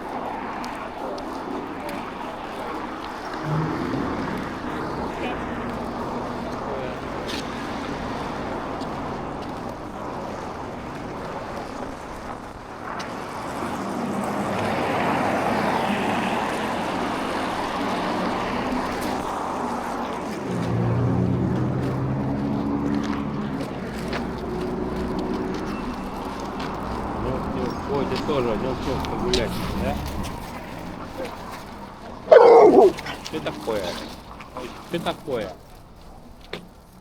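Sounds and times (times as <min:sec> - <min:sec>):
vehicle passing: 0:03.2 - 0:09.4, 0:13.8 - 0:35.5.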